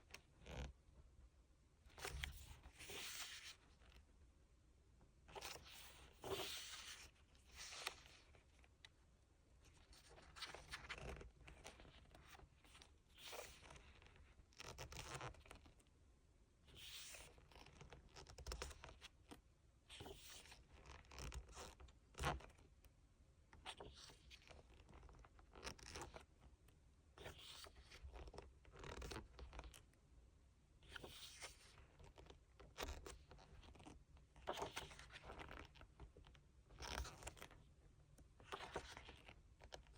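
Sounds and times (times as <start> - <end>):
paper pages rustling: 2.0 - 3.8, 5.4 - 8.3.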